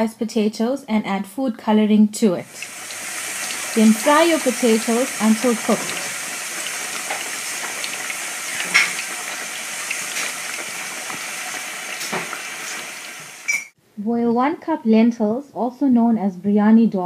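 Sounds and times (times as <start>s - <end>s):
potatoes sizzling in hot oil: 2.4s - 13.8s.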